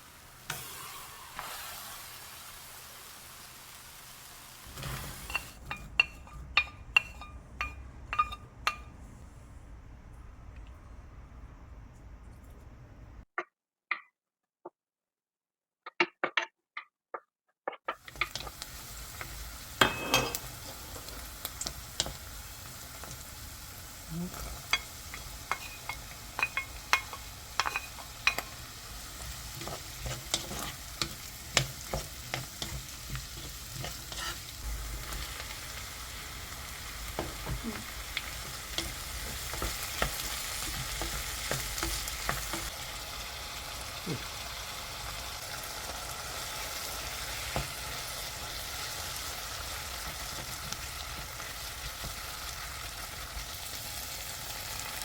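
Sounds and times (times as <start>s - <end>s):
food sizzling in a pan: 0.0s - 7.4s, 18.0s - 55.0s
utensil scraping a pan: 4.6s - 8.4s, 29.2s - 35.4s.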